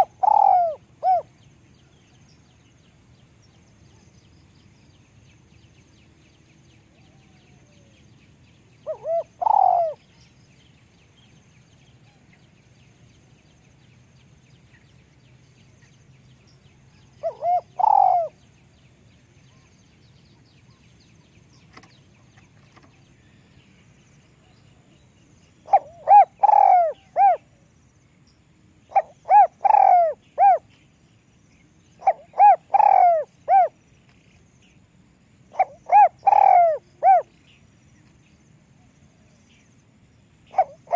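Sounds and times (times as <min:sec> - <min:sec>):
dove cooing: 0:00.0 - 0:01.3, 0:08.8 - 0:10.1, 0:17.2 - 0:18.4, 0:25.6 - 0:27.6, 0:28.9 - 0:30.7, 0:32.0 - 0:33.8, 0:35.5 - 0:37.3, 0:40.5 - 0:40.9.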